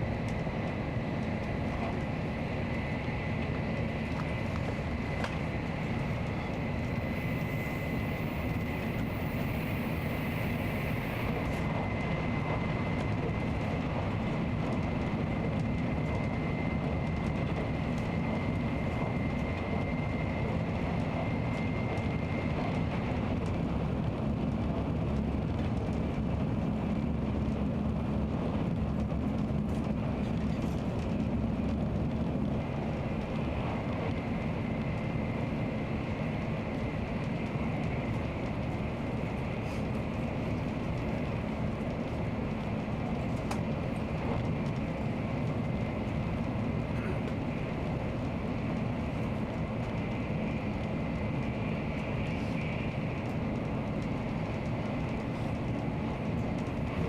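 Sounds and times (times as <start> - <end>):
train rumbling at speed: 0.0 - 57.0
faint high whine: 5.7 - 11.7.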